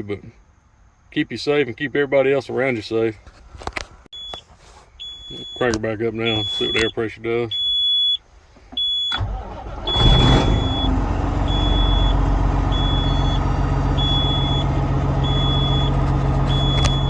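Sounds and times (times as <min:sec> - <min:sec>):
dashboard alarm beeping: 0:04.2 - 0:17.0
diesel truck engine starting and idling: 0:08.7 - 0:17.0.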